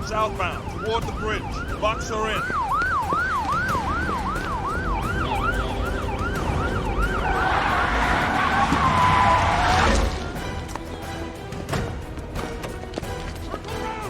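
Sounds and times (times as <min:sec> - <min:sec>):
police siren yelping: 0:00.0 - 0:10.4
steady siren tone: 0:00.0 - 0:10.4.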